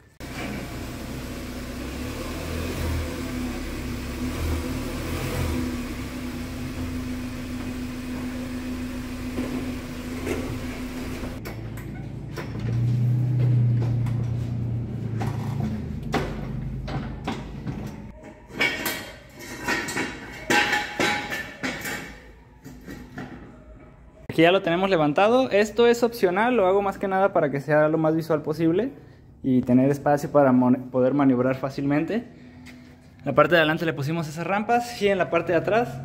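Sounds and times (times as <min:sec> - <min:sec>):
car engine running: 0:00.2 - 0:11.4
deep steady hum: 0:00.2 - 0:11.4.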